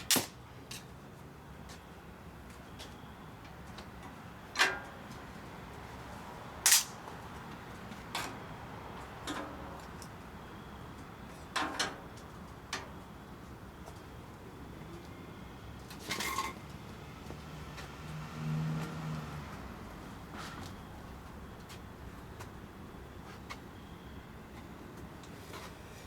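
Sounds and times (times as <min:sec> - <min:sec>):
low steady fire background: 0:00.0 - 0:17.4.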